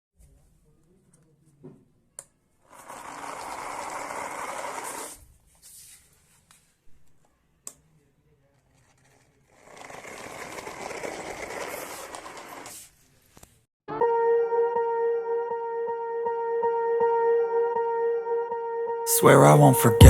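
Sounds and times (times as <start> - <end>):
small electric motor whirring: 2.7 - 5.2.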